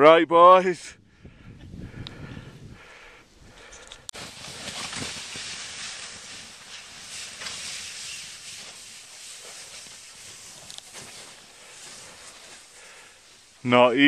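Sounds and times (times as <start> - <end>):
snowboard scraping over snow: 4.2 - 13.0.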